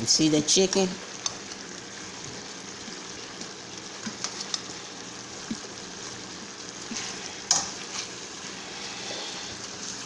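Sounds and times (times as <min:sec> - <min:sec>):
chicken and vegetables sizzling: 0:00.0 - 0:10.0.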